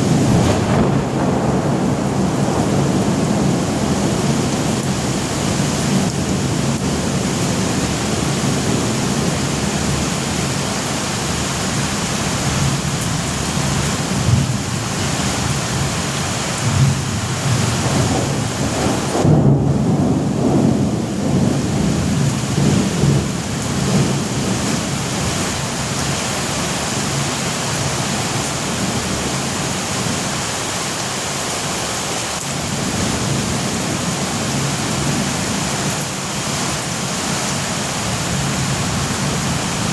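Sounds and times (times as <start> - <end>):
thunder rumbling: 0.0 - 10.7, 12.4 - 26.1, 32.5 - 39.9
heavy rain: 0.0 - 39.9.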